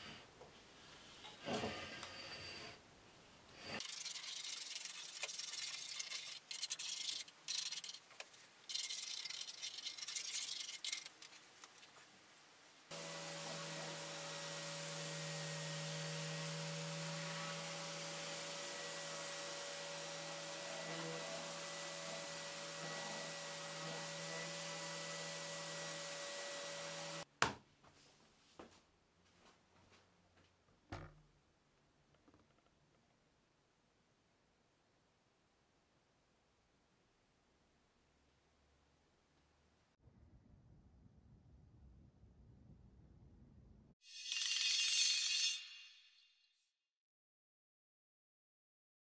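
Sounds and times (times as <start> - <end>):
scraping strokes: 3.6 - 12.0
orbital sander humming: 12.9 - 27.2.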